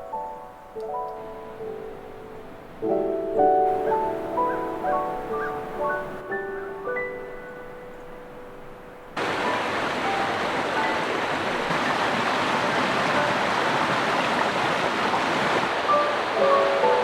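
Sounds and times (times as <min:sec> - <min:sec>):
creek water rushing: 0:09.2 - 0:17.0.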